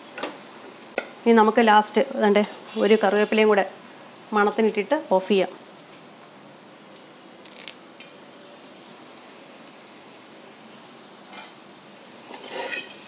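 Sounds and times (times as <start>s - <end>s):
prawns sizzling in a wok: 0.0s - 13.0s
oil crackle: 4.8s - 6.1s, 7.4s - 11.6s.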